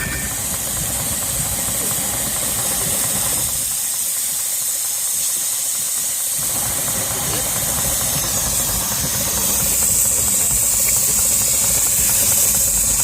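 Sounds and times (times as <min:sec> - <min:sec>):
steam hissing: 0:00.0 - 0:13.0.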